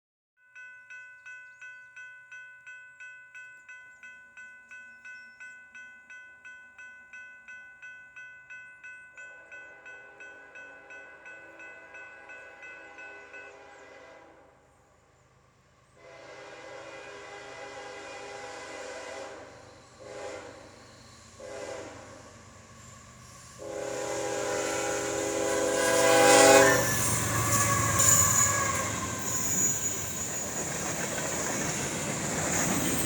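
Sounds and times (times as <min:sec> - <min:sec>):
crossing warning bell ringing: 0:00.4 - 0:13.8, 0:23.1 - 0:33.0
low train hum: 0:07.8 - 0:33.0.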